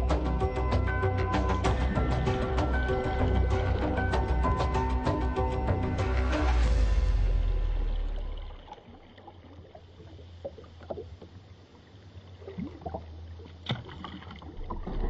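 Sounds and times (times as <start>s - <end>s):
kayak paddle splashing water: 1.4s - 15.0s.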